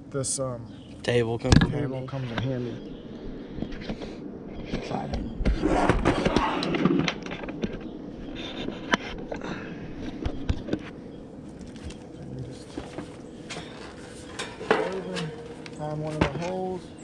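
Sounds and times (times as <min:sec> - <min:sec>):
metal scraping and clattering: 0:12.7 - 0:16.5.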